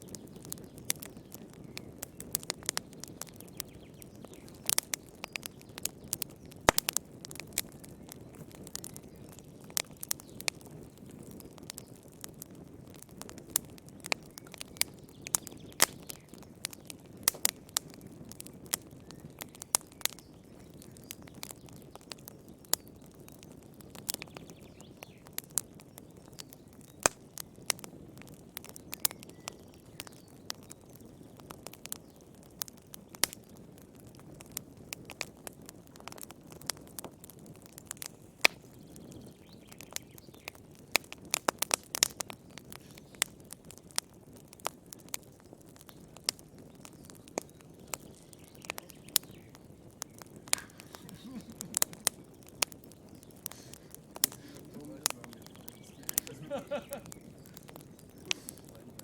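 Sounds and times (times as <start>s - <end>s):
wood fire crackling and popping: 0.0s - 59.0s
rush of flame: 45.5s - 59.0s.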